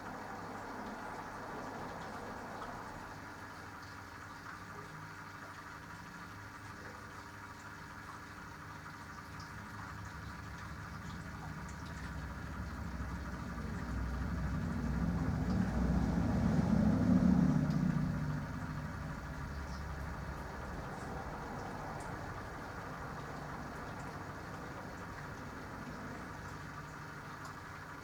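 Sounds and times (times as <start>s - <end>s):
washing machine motor hum: 10.6s - 28.0s.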